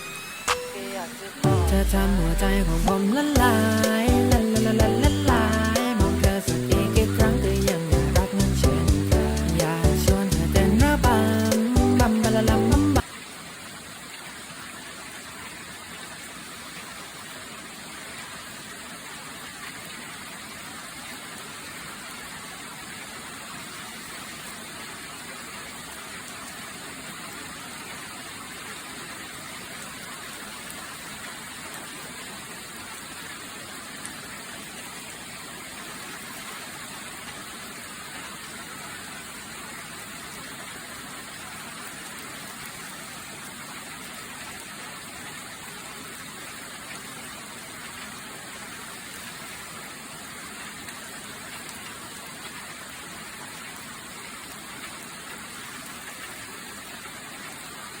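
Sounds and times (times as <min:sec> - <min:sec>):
heavy rain pouring: 0:00.0 - 0:13.4.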